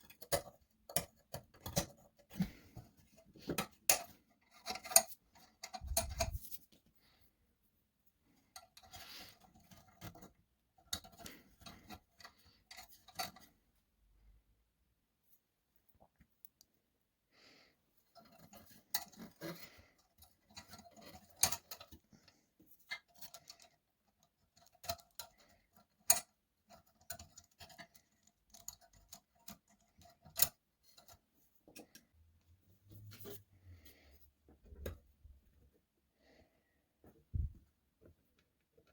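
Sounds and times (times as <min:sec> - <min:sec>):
small hard parts clicking: 0:03.4 - 0:06.6, 0:18.2 - 0:32.1.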